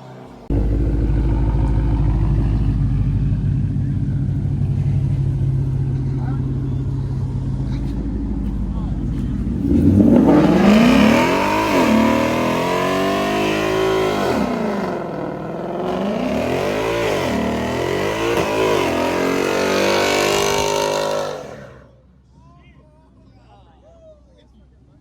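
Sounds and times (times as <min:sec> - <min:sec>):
car engine revving: 0:00.4 - 0:22.1.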